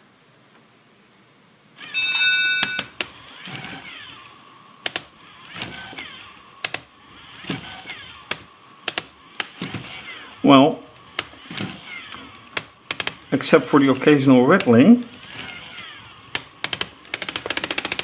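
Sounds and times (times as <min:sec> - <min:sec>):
small electric motors whining: 0:01.8 - 0:18.0
robot legs clicking and rattling: 0:13.9 - 0:18.0.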